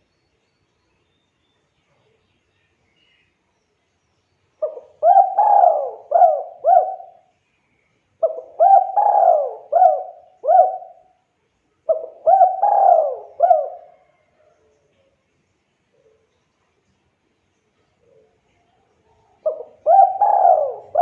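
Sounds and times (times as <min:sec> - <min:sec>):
dove cooing: 0:04.6 - 0:07.3, 0:08.2 - 0:11.1, 0:11.9 - 0:14.5, 0:19.4 - 0:21.0.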